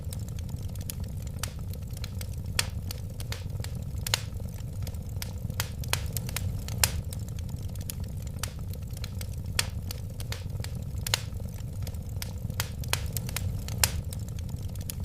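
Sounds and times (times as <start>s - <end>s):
fire crackling and popping: 0.0s - 15.0s
rumble of fire flames: 0.0s - 15.0s.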